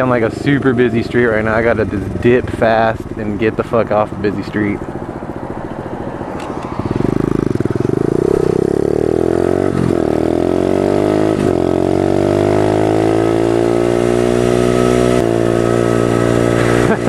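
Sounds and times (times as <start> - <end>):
small motorbike engine accelerating: 4.0 - 17.0.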